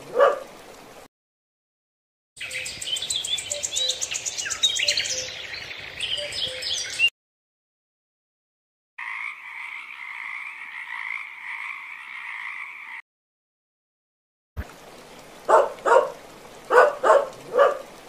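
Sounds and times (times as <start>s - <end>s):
small dog yapping: 0.1s - 0.5s, 15.5s - 17.8s
tree frog trilling: 9.0s - 13.0s.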